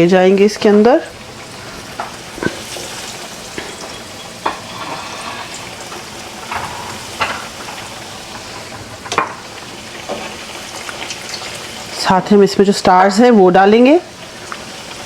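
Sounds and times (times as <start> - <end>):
food sizzling in hot oil: 0.0 - 15.0
oil popping: 1.1 - 11.6.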